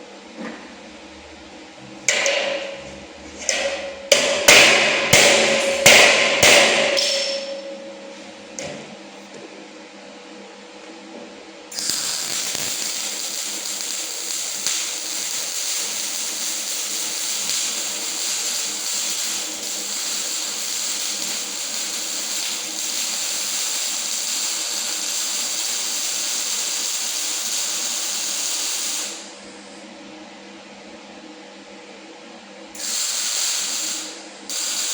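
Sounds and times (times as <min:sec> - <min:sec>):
welder arc hissing and crackling: 0:11.7 - 0:29.4, 0:32.8 - 0:34.9.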